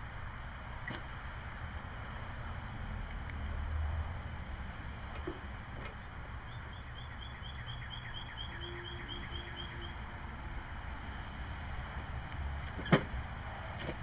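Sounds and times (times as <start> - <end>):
bird calling high notes: 6.5 - 10.0.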